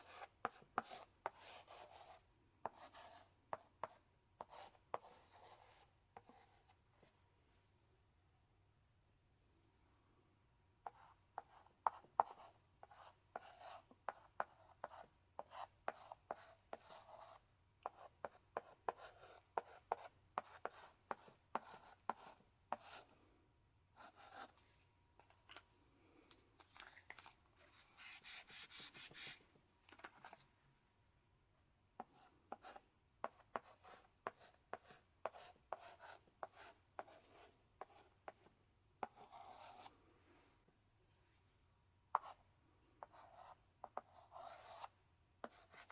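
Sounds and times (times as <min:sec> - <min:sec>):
chalk writing on a blackboard: 0:00.0 - 0:06.8, 0:10.8 - 0:23.1, 0:24.0 - 0:24.8, 0:26.8 - 0:29.4, 0:32.0 - 0:39.9, 0:42.1 - 0:42.4, 0:43.0 - 0:45.9.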